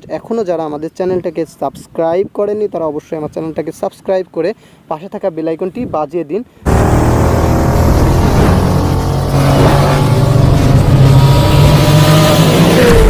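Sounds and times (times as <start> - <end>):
loud engine running: 6.7 - 13.0.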